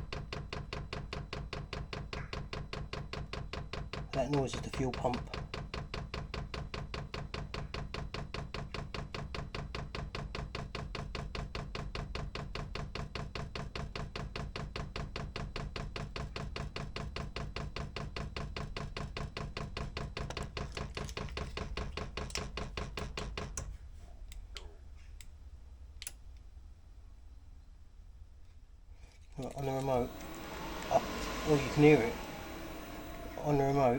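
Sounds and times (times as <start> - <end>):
fuel pump ticking rapidly: 29.6 - 33.9.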